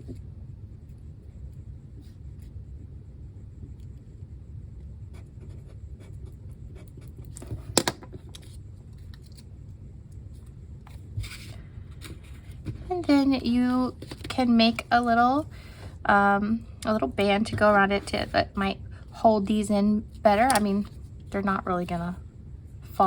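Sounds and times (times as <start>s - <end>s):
light scratches on paper: 5.1s - 7.7s.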